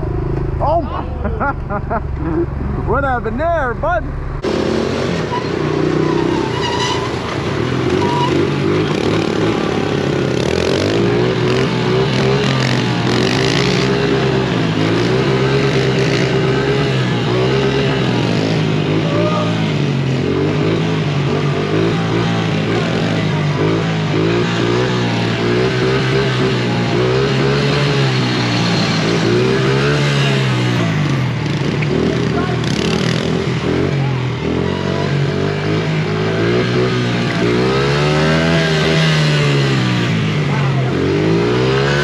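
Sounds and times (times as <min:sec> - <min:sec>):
steady engine drone: 0:00.0 - 0:05.4
pit bike engines revving: 0:00.0 - 0:42.0.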